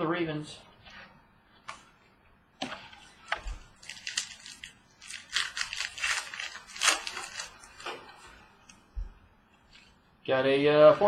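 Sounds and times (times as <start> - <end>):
wrapper crinkling and rustling: 3.5 - 8.8.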